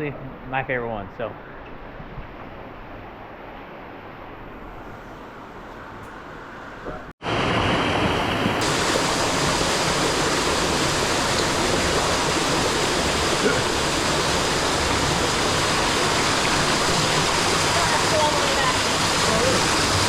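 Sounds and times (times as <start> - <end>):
waterfall rushing: 7.2 - 20.0.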